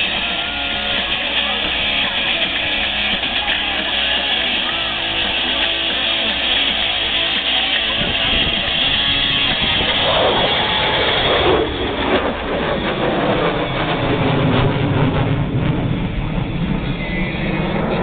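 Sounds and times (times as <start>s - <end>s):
guitar music over loudspeakers: 0.0s - 11.6s
jet flying past: 0.0s - 18.0s.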